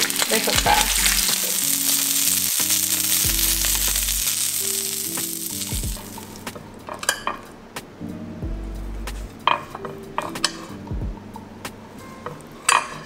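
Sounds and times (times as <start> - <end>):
fish sizzling in a frying pan: 0.0 - 6.5
background music: 0.0 - 13.0.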